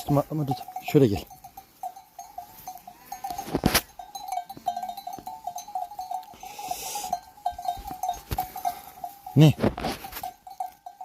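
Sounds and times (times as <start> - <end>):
small bell clinking: 0.0 - 11.0
short rustle: 6.3 - 10.6.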